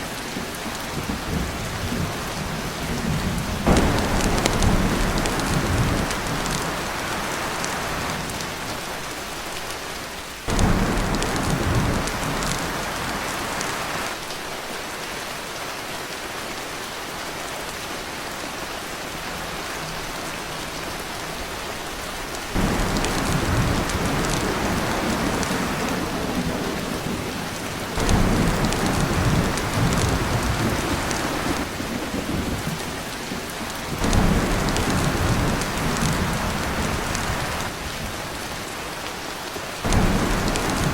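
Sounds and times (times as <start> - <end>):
heavy rain on a tin roof: 0.0 - 40.9
thunder rumbling: 1.0 - 8.6, 10.5 - 14.1, 22.5 - 37.9, 39.8 - 40.9.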